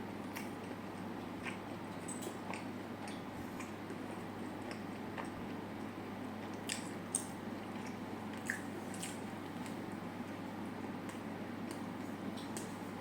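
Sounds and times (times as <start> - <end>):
low background hum: 0.0 - 13.0
chewing food: 0.2 - 13.0.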